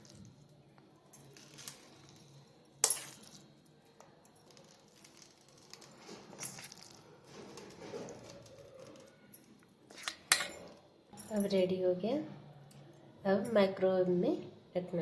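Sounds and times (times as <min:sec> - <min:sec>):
utensils clinking on baking tin: 0:01.2 - 0:09.3, 0:09.9 - 0:11.6.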